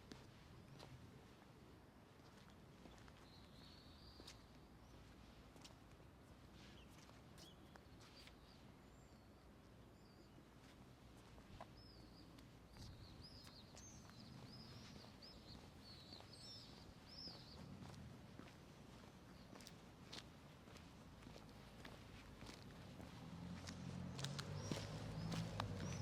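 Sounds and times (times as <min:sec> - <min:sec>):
faint songbird twittering: 0:06.6 - 0:10.5, 0:11.6 - 0:18.5.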